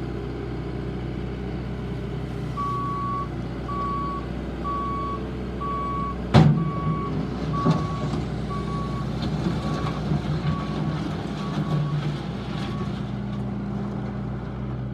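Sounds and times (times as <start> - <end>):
diesel engine running: 0.0 - 14.9
backup alarm beeping: 2.6 - 9.1.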